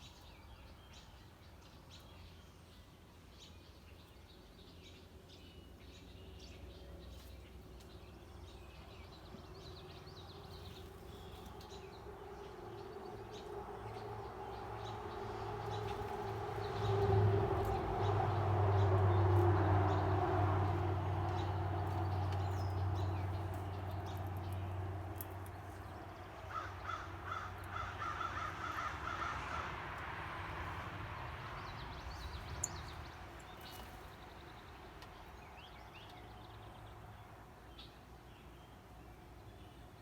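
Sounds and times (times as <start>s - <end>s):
bird calling: 26.4s - 29.6s.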